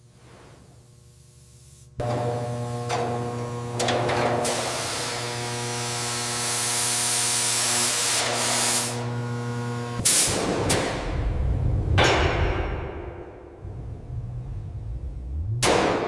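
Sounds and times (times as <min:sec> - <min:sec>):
motor humming: 0:02.0 - 0:07.6, 0:08.2 - 0:10.0.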